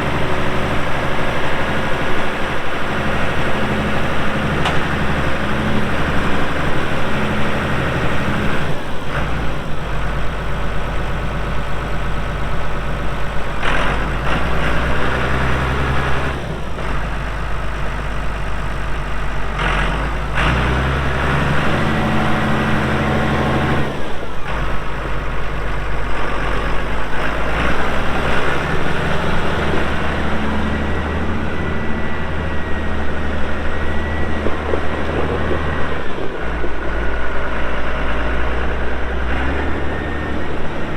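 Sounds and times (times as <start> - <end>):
tractor diesel engine running: 0.0 - 40.9
thin steady whine: 29.2 - 37.8.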